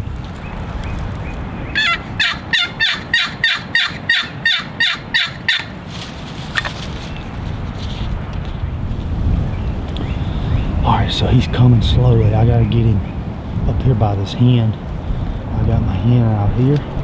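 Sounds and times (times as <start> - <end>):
wind noise on microphone: 0.0 - 17.0
raspy turkey yelps: 1.7 - 7.2.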